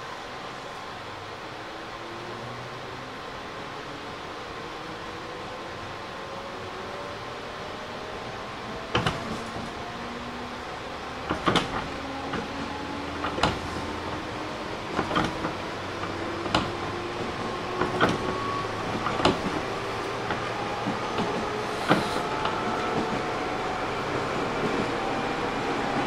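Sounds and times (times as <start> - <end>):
electric train motor whine: 6.3 - 26.0
wheels clacking over rail joints: 8.8 - 10.0, 11.0 - 23.6.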